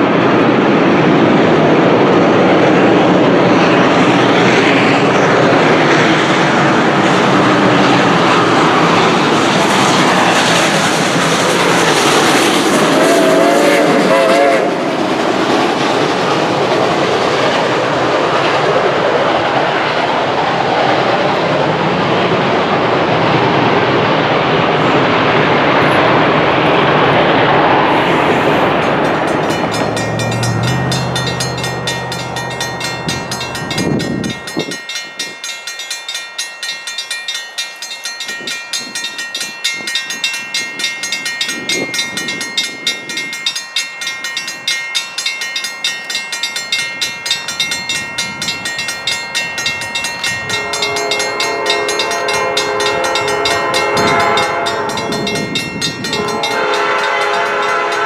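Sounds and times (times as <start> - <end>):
steam locomotive rhythmic beat: 3.7 - 18.7, 27.7 - 58.0
steam whistle chord: 12.7 - 15.0, 50.5 - 55.4, 56.1 - 58.0.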